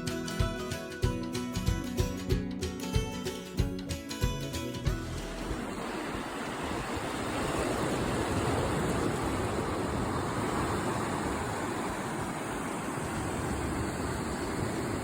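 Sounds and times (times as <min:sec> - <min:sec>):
rushing water: 0:04.0 - 0:15.0.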